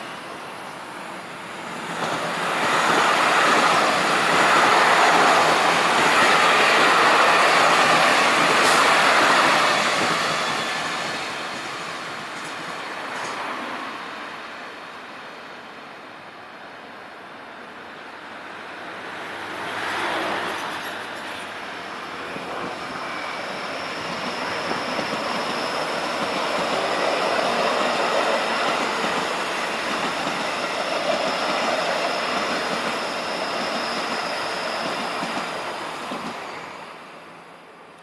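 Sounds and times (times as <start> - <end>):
train wheels rolling on rails: 0.0 - 14.5, 18.1 - 38.0
thin high whine: 19.6 - 37.9.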